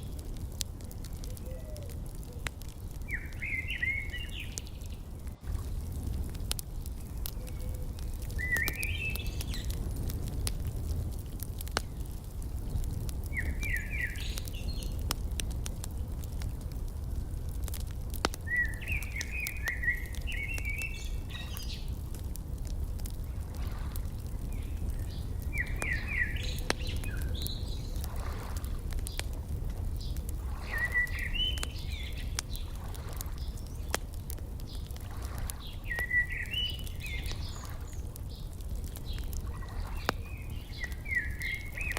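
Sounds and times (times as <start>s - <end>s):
steady low rumble: 0.0s - 36.1s
wood fire crackling: 0.0s - 41.9s
songbird chirping: 1.0s - 5.2s, 6.8s - 9.9s, 11.8s - 15.2s, 18.3s - 22.1s, 23.4s - 28.4s, 29.0s - 41.9s.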